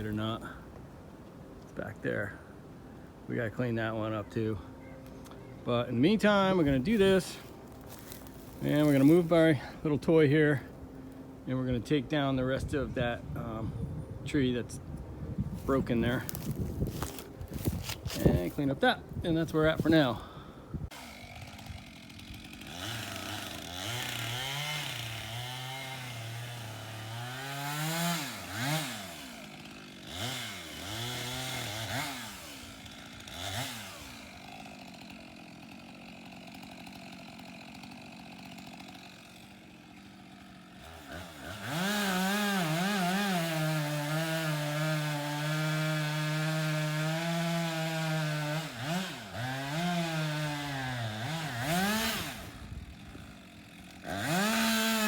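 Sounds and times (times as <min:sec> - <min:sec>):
two-stroke saw engine revving: 0:20.9 - 0:55.0.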